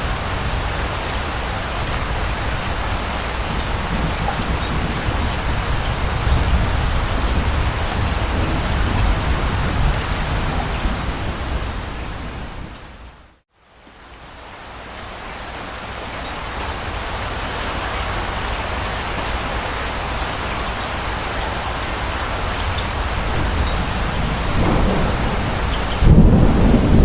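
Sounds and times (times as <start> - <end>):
steady rain: 0.0 - 27.0
thunder rumble: 1.7 - 13.0, 22.4 - 27.0.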